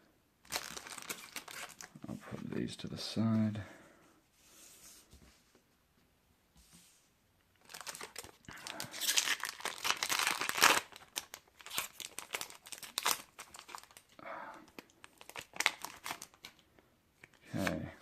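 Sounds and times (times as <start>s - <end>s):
foil wrapper tearing and crinkling: 0.5s - 2.0s, 7.6s - 16.6s.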